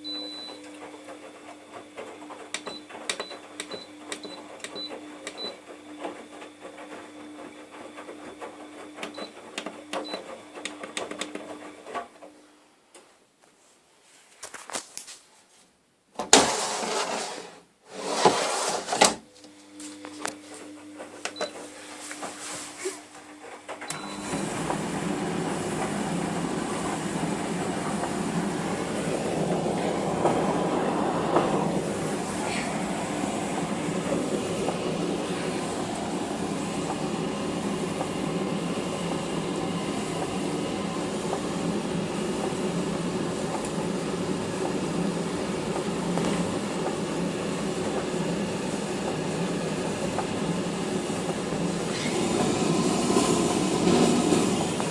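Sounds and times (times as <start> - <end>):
washing machine motor hum: 0.0 - 12.0, 16.2 - 54.9
washing machine rumbling: 21.1 - 54.9.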